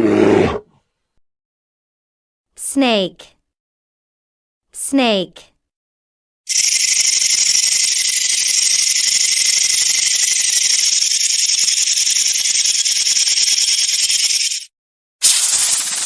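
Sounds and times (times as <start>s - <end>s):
rattlesnake tail rattle buzz: 6.5s - 16.0s.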